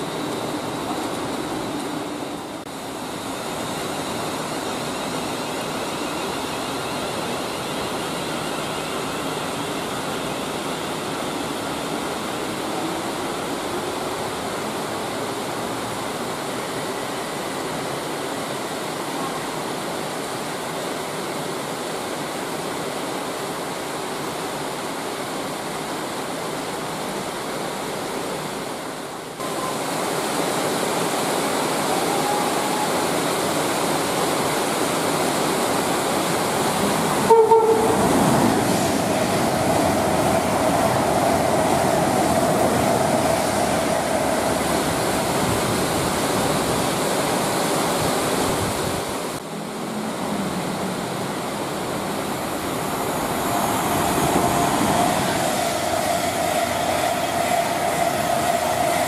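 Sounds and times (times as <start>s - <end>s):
steady rain: 0.0s - 59.0s
faint whine: 52.1s - 59.0s.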